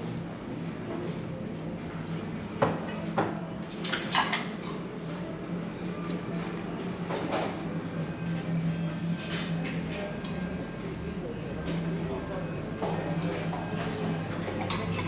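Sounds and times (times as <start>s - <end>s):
plates and cutlery clinking: 12.9s - 15.0s.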